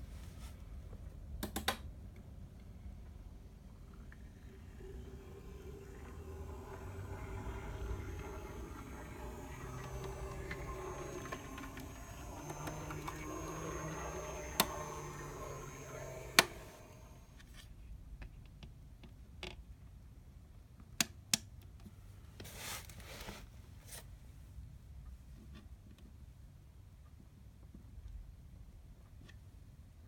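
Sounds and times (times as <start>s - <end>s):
model train motor whine: 3.0s - 17.4s.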